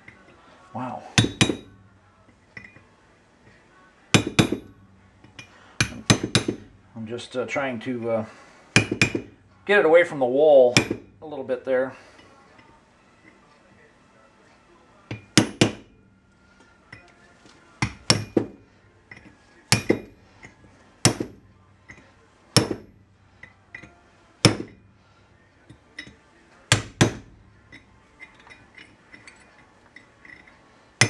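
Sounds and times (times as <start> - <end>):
hammer striking metal chisel: 1.2 - 1.8, 2.5 - 2.9, 4.1 - 6.7, 8.7 - 9.4, 10.6 - 11.2, 15.1 - 16.0, 17.8 - 24.9, 25.7 - 31.0.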